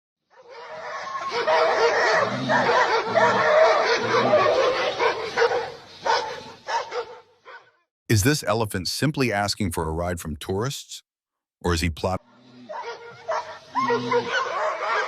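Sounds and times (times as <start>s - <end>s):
dog vocalising: 0.6s - 7.1s, 12.6s - 15.0s.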